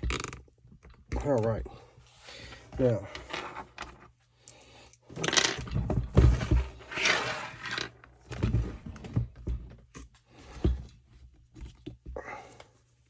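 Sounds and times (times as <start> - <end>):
tools scraping and rattling: 3.0 - 4.1, 5.1 - 9.2.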